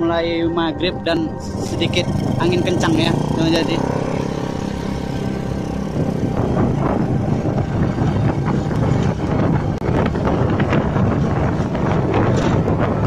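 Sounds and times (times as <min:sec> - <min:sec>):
wind buffeting microphone: 0:00.0 - 0:13.0
motorcycle engine running: 0:01.4 - 0:13.0.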